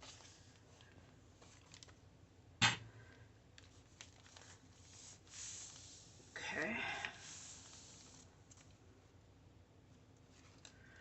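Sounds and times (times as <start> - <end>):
paper rustling: 0.0 - 2.0, 3.6 - 6.1, 7.1 - 8.8.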